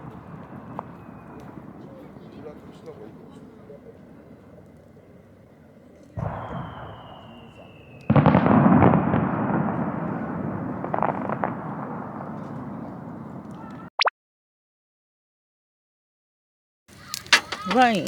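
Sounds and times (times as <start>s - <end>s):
firework whistle: 0.0s - 2.0s, 6.2s - 11.5s
distant fireworks bursting: 0.0s - 13.9s
firework crackles: 0.0s - 13.9s, 16.9s - 18.0s.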